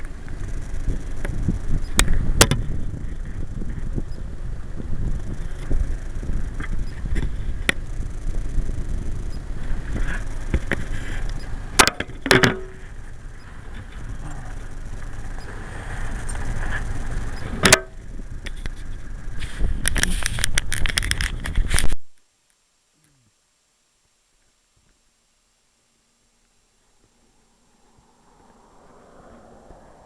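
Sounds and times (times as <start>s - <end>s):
motorcycle engine running: 0.0s - 21.5s
wind rumble on microphone: 0.0s - 22.2s, 27.0s - 30.0s.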